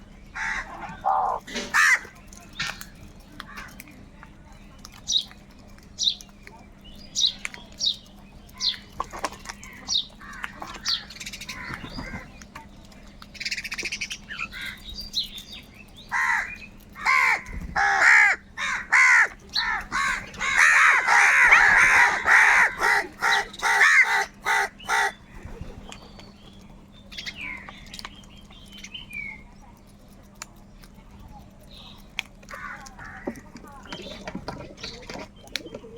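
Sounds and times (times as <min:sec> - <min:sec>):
crows cawing: 0:00.4 - 0:02.1, 0:03.5 - 0:03.8, 0:10.2 - 0:12.2, 0:16.1 - 0:25.2, 0:32.5 - 0:33.4.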